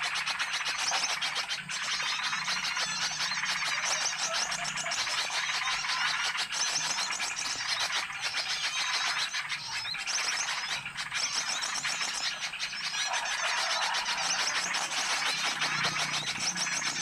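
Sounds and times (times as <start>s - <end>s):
many small birds chirping: 0.0s - 17.0s.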